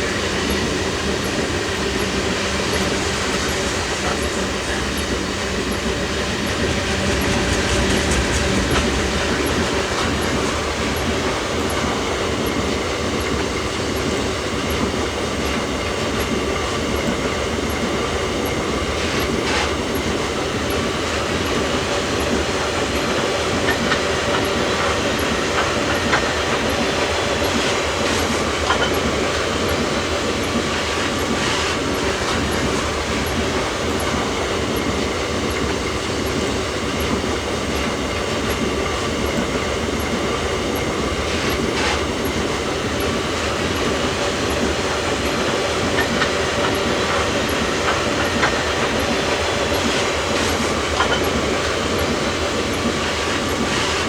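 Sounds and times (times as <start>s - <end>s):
freight train wheels rumbling: 0.0s - 54.0s
clicking over rail joints: 30.4s - 54.0s.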